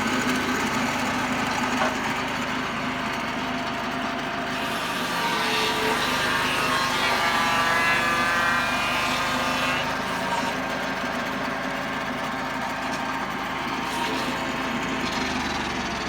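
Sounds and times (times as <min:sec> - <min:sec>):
engine running: 0:00.0 - 0:04.6
saw blade whine: 0:00.0 - 0:16.0.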